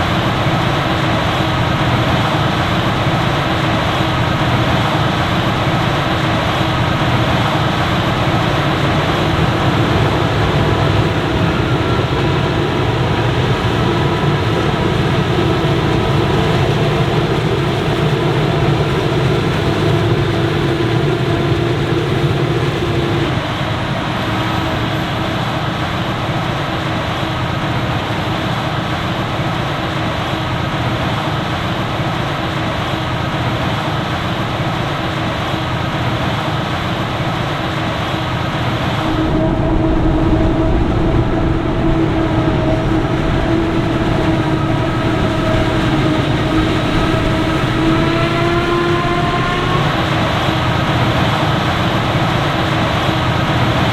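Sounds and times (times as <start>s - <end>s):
steady whine: 0.0s - 35.9s, 36.6s - 53.9s
heavy diesel machinery running: 0.0s - 53.9s.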